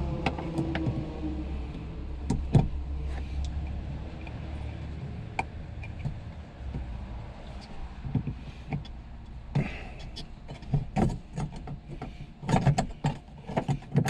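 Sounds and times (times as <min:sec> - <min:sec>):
low steady rumble: 0:00.0 - 0:13.9
tool clicks and knocks: 0:09.6 - 0:14.0.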